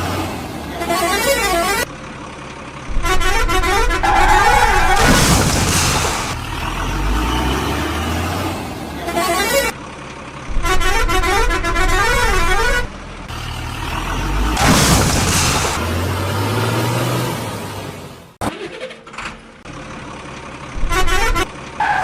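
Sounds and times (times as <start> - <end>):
loud noisy blast: 2.9 - 6.4, 14.6 - 15.9.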